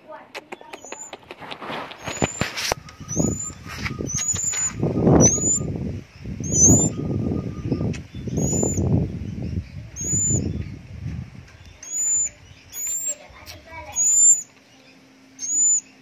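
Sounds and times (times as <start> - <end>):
songbird chirping: 0.0 - 16.0
wing flapping: 0.4 - 5.5.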